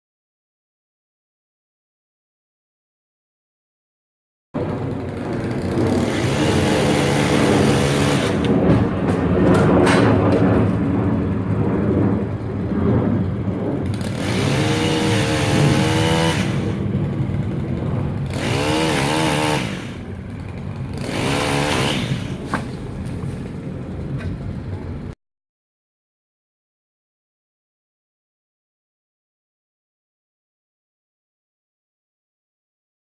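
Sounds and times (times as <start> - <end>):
chainsaw engine revving: 4.6 - 8.8, 13.8 - 23.2.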